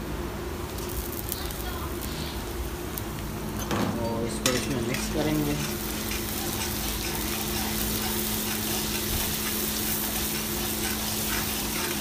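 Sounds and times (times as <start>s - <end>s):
onions sizzling in oil: 4.9s - 12.0s.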